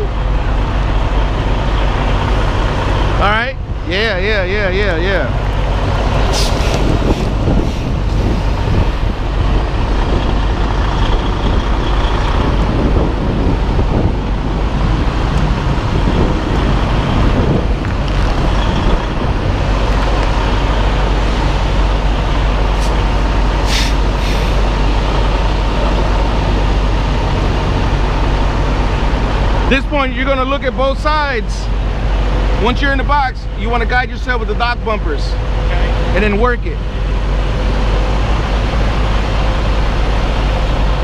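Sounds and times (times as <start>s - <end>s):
diesel engine low rumble: 0.0s - 41.0s
short air hisses: 6.3s - 8.7s, 23.6s - 24.7s.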